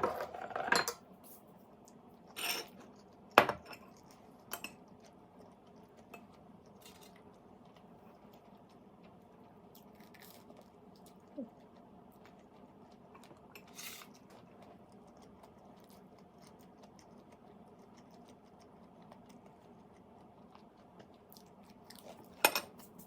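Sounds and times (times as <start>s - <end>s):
utensils clinking on dish: 0.0s - 1.0s, 2.4s - 2.7s, 22.4s - 22.8s
faint steady hum: 0.0s - 23.0s.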